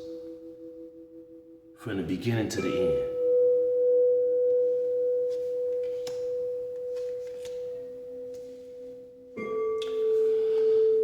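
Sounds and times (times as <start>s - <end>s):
pure ringing tone: 0.0s - 1.8s, 2.6s - 11.0s.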